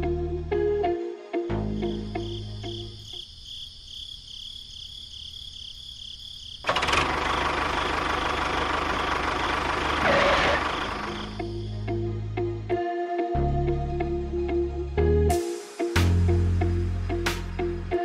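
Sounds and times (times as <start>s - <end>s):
background music: 0.0s - 3.0s, 10.8s - 18.0s
model tractor motor running: 6.6s - 11.4s.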